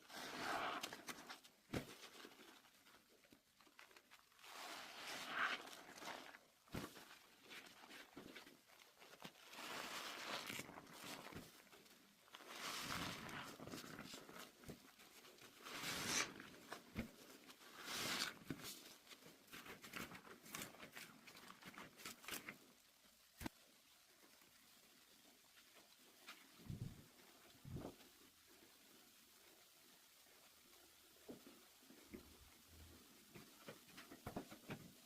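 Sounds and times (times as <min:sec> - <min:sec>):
small pops and crackles: 0:18.4 - 0:28.2.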